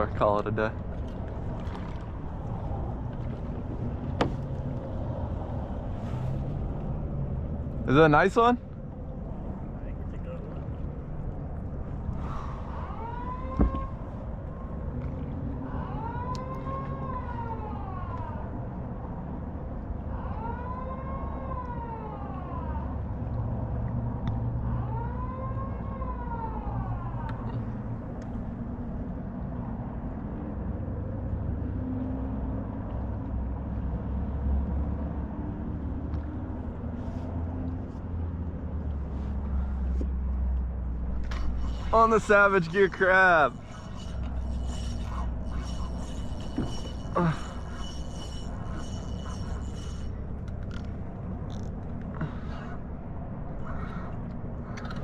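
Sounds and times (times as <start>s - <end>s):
steady low rumble: 0.0s - 20.2s, 26.8s - 55.0s
emergency siren wailing: 12.6s - 14.0s, 20.1s - 23.1s, 24.6s - 27.4s, 41.3s - 50.8s.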